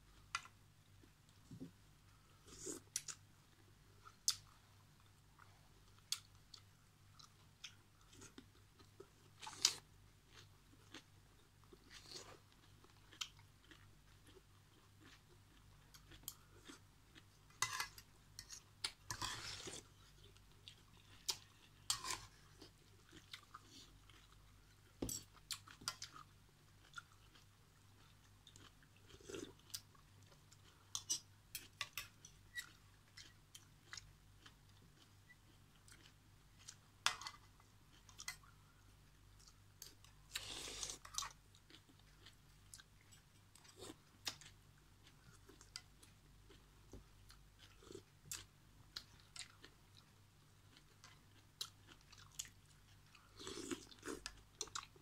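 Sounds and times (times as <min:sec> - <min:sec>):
chewing noodles: 0:50.7 - 0:55.0.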